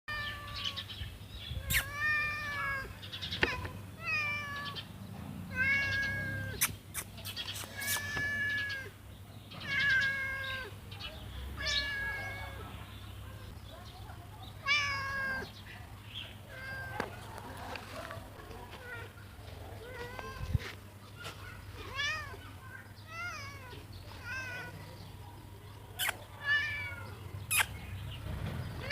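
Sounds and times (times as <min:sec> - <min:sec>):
cat meowing: 0:00.1 - 0:00.8, 0:01.6 - 0:04.8, 0:05.5 - 0:06.7, 0:07.7 - 0:08.9, 0:09.5 - 0:10.8, 0:11.6 - 0:12.7, 0:14.6 - 0:15.5, 0:16.5 - 0:17.1, 0:23.1 - 0:24.7, 0:26.0 - 0:27.7.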